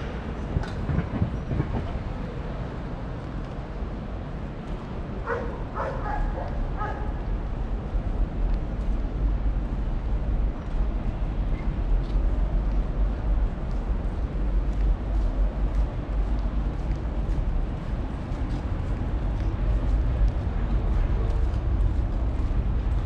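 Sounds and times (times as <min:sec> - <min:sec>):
low outdoor rumble: 0:00.0 - 0:23.0
dog barking: 0:05.2 - 0:07.1.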